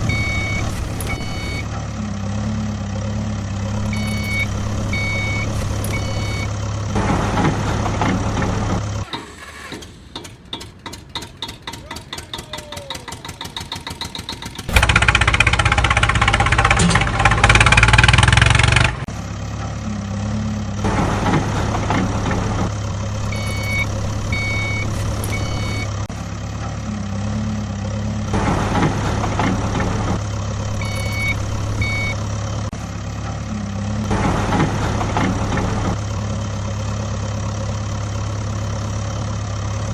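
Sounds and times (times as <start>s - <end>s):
reversing beeps: 0.0s - 1.7s, 3.6s - 6.6s, 23.1s - 26.1s, 30.5s - 32.3s
engine cranking clicks: 0.0s - 1.8s, 3.5s - 19.1s, 21.2s - 26.1s, 28.2s - 33.4s
heavy vehicle engine: 0.0s - 39.9s.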